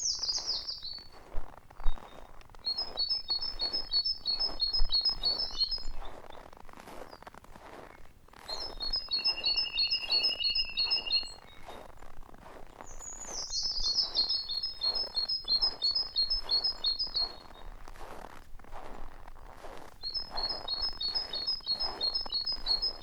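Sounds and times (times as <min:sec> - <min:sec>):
steady bird trill: 0:00.0 - 0:01.1, 0:02.6 - 0:06.0, 0:08.5 - 0:11.7, 0:12.8 - 0:17.6, 0:20.0 - 0:23.0
songbirds singing: 0:00.0 - 0:01.2, 0:01.8 - 0:06.4, 0:08.5 - 0:11.9, 0:12.8 - 0:17.7, 0:20.0 - 0:23.0.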